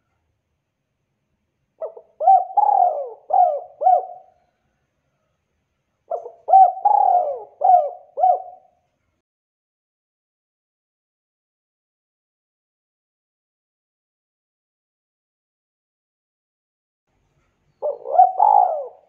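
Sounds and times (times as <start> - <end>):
dove cooing: 1.8 - 4.4, 6.1 - 8.8, 17.8 - 19.0.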